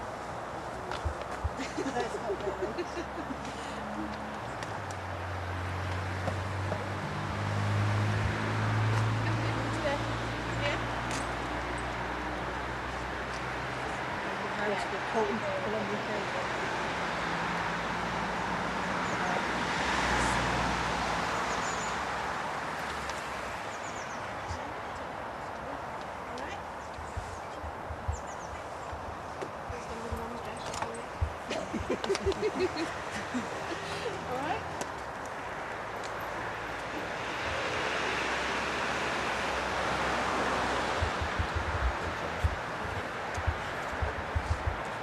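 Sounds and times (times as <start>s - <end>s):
wind rushing across microphone: 0.0s - 14.4s, 16.4s - 35.9s, 36.5s - 45.0s
buffeting thumps on microphone: 1.0s - 1.6s, 27.1s - 32.5s, 40.9s - 45.0s
small birds chirping: 21.3s - 22.2s, 22.8s - 33.4s
motor vehicle running: 26.0s - 45.0s.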